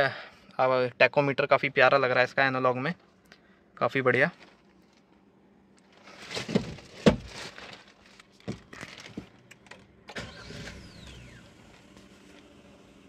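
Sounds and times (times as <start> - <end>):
car engine idling: 9.8 - 13.0.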